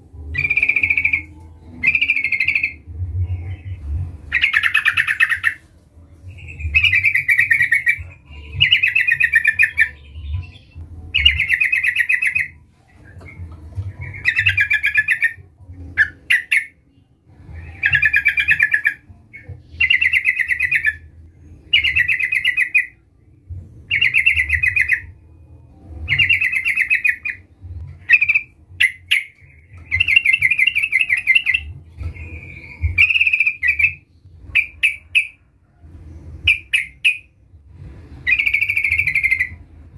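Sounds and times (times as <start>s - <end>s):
bulbul singing warbled phrases: 0.3s - 5.6s, 6.3s - 12.6s, 14.0s - 16.7s
low rumble: 2.7s - 8.9s, 34.0s - 39.9s.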